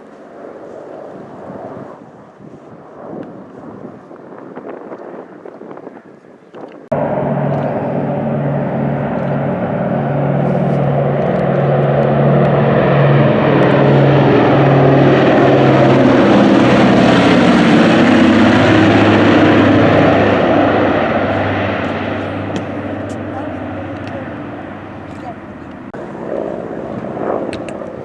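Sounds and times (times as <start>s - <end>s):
propeller airplane flying past: 0.0s - 28.0s.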